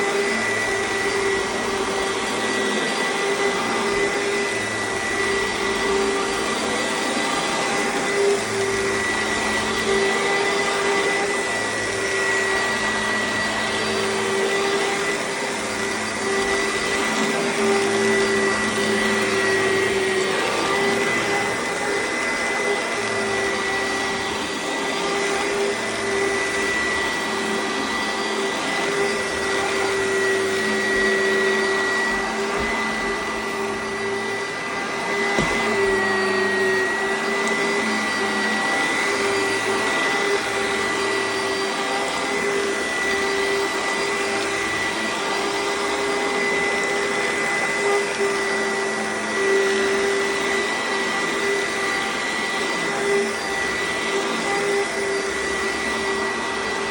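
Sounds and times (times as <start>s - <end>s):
upright vacuum cleaner whining: 0.0s - 56.9s.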